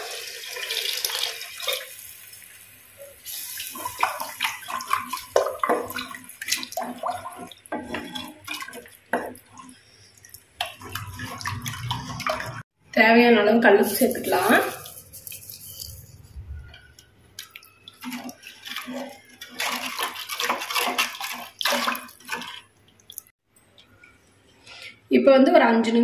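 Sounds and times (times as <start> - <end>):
water pouring into a pot: 0.0 - 12.6, 17.4 - 23.3
spatula stirring sloshing gravy: 3.2 - 12.6, 13.9 - 23.3
spatula scraping clay pot: 6.8 - 8.8.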